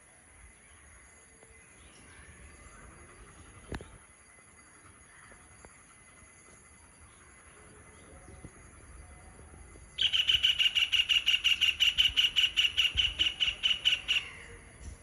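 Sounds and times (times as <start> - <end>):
bird chirping: 9.9 - 15.0.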